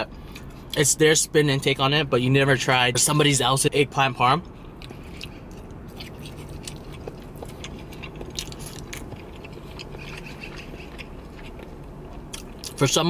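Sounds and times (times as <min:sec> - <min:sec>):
person chewing food: 0:04.5 - 0:12.9.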